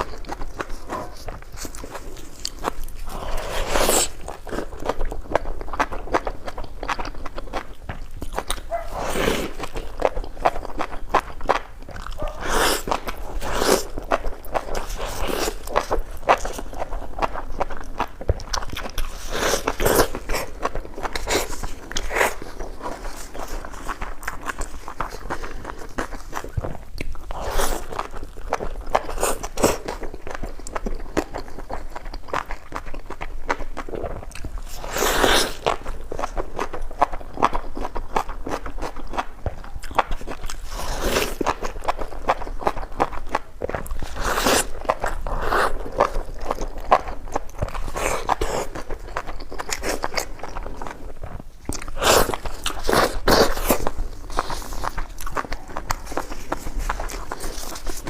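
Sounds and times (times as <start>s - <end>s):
person chewing crunchy food: 0.0s - 58.0s.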